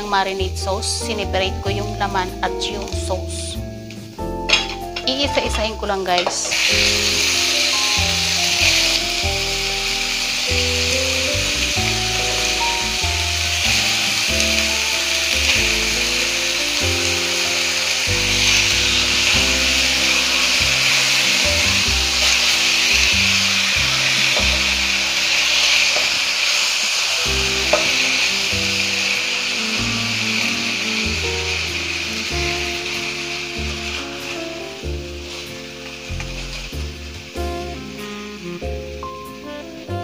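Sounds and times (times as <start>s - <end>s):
background music: 0.0s - 40.0s
food sizzling in hot oil: 0.0s - 40.0s.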